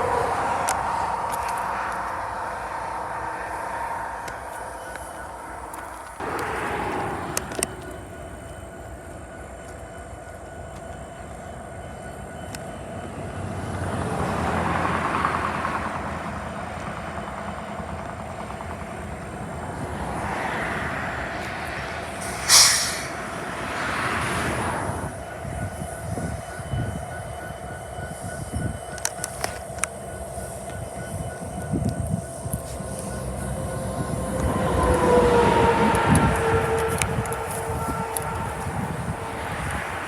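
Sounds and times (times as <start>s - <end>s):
train rumbling past: 0.0s - 40.0s
short sharp hiss: 22.2s - 23.2s.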